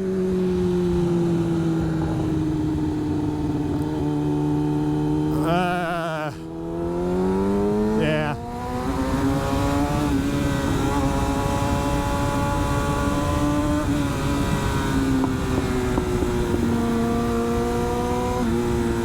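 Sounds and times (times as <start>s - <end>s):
motorcycle engine running: 0.0s - 19.0s
low wind rumble: 6.5s - 19.0s.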